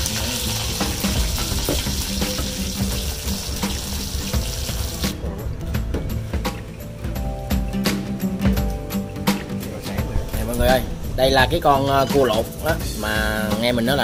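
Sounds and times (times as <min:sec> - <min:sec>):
food sizzling in hot oil: 0:00.0 - 0:05.2
background music: 0:00.0 - 0:14.0.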